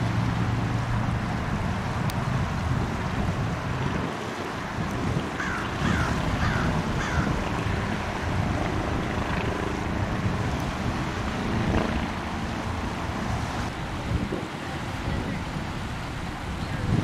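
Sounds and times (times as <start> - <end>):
water: 0.0 - 17.0
wind on microphone: 0.0 - 17.0
bird calls: 5.4 - 7.3.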